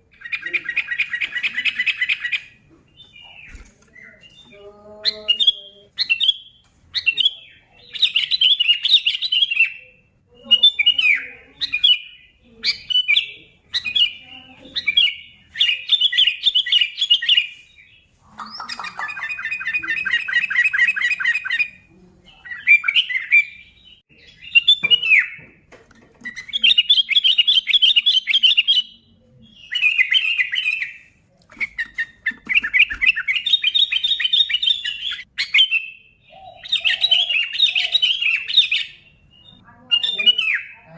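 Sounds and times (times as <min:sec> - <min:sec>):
bulbul calling: 0:26.2 - 0:40.9.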